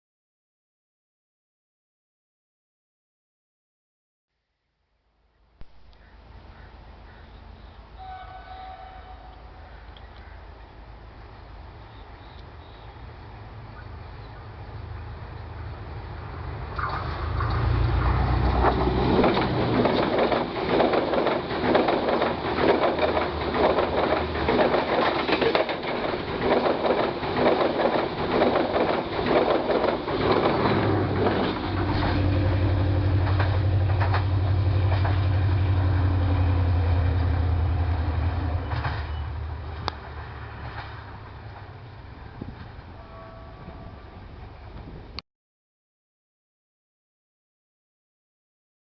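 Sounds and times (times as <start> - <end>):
train wheels clicking over rail joints: 16.8 - 35.6, 38.6 - 41.8
diesel engine drone: 30.0 - 40.4.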